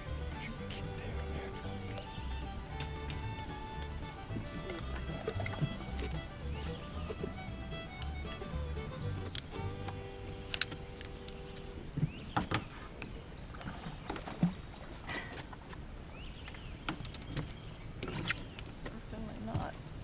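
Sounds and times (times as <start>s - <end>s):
background hiss: 0.0s - 13.6s
knocks and clatter in boat: 2.7s - 7.5s, 11.9s - 12.8s, 16.4s - 19.9s.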